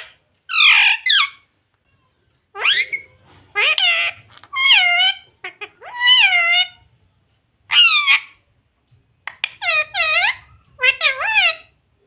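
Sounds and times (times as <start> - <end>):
parrot calls: 0.0 - 1.4, 2.5 - 6.9, 7.7 - 8.4, 9.2 - 11.8
parrot chirps: 0.0 - 1.5, 2.5 - 6.9, 7.7 - 8.4, 9.2 - 11.8.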